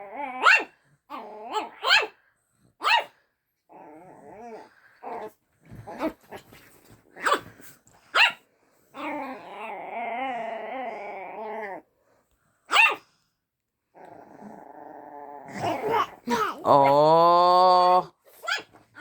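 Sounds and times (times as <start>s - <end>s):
dog barking: 1.8s - 2.2s, 2.8s - 3.1s, 8.1s - 8.4s, 12.7s - 13.0s.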